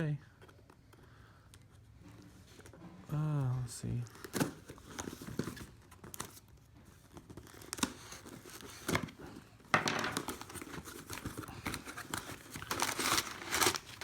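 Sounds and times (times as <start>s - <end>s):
packing material crinkling and tearing: 3.9s - 9.4s, 10.1s - 14.0s.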